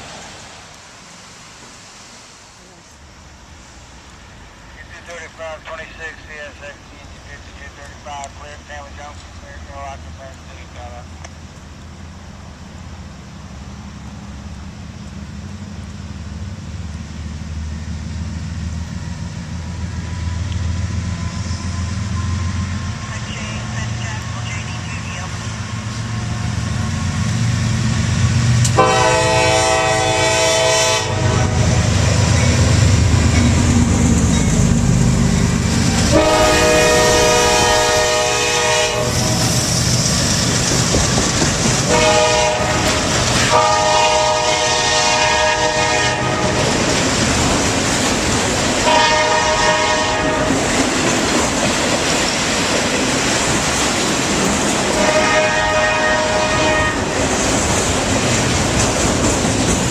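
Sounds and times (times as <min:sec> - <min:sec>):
locomotive rumble: 0:04.2 - 0:59.9
locomotive horn blasts: 0:28.7 - 0:31.8, 0:36.1 - 0:39.4, 0:41.9 - 0:46.6, 0:48.8 - 0:50.6, 0:55.0 - 0:57.2
train wheels clattering: 0:39.1 - 0:44.1, 0:46.4 - 0:55.5, 0:57.0 - 0:59.9.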